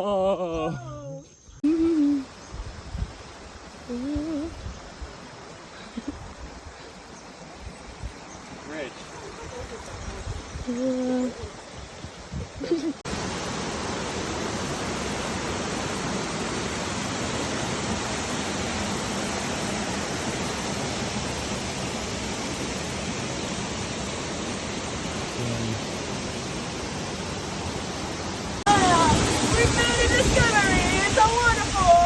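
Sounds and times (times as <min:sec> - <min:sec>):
waterfall rushing: 0:13.0 - 0:32.0.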